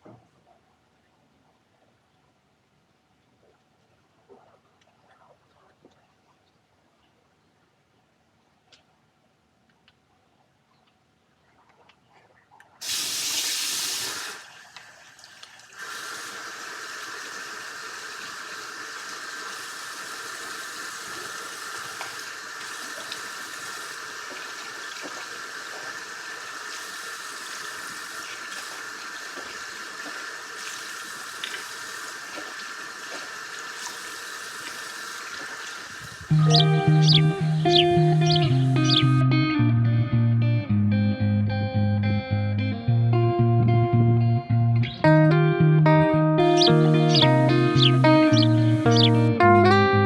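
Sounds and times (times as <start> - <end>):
small water splashes: 11.4 - 36.3
running water rushing: 12.8 - 39.2, 46.4 - 49.3.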